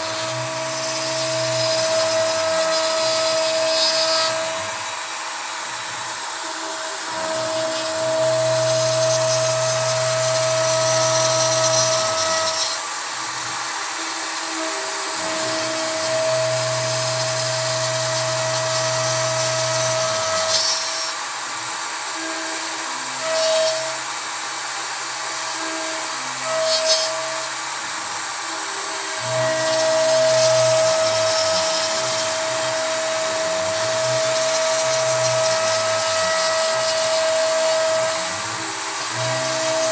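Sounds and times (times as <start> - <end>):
low machine hum: 0.0 - 21.4
router spindle whine: 0.0 - 39.9.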